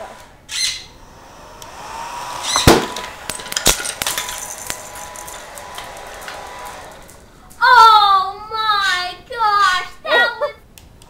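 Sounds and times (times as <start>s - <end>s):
hair dryer whining: 0.0s - 7.6s
clacks and rattles of parts: 2.6s - 7.6s.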